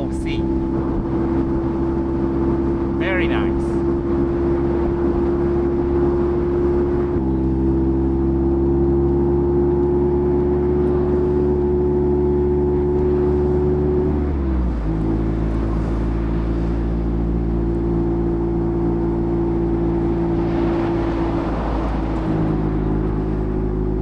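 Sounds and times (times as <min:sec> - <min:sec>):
wind noise: 0:00.0 - 0:07.4, 0:18.8 - 0:24.0
car engine cruising: 0:00.0 - 0:24.0
road noise: 0:00.0 - 0:24.0.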